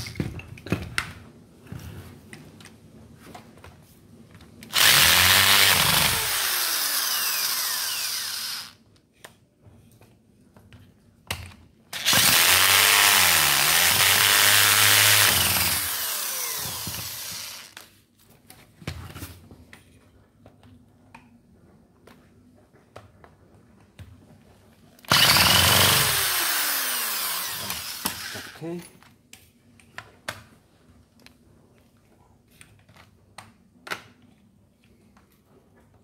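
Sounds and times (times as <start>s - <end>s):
power tool motor running: 4.7s - 8.8s, 12.0s - 17.8s, 25.1s - 28.6s.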